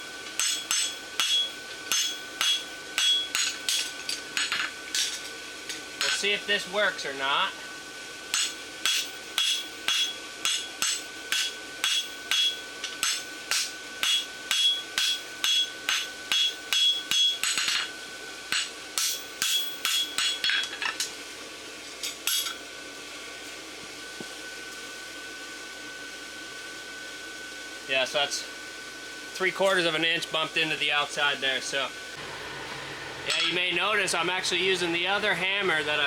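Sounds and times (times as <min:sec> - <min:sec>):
steady hum: 0:00.0 - 0:36.0
hammer ringing on anvil: 0:00.4 - 0:04.7, 0:08.3 - 0:17.9, 0:18.5 - 0:20.7, 0:33.3 - 0:33.7.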